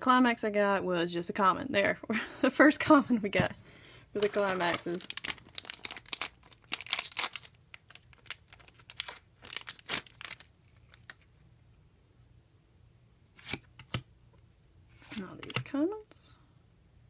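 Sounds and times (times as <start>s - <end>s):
foil wrapper crinkling and tearing: 4.2s - 11.3s.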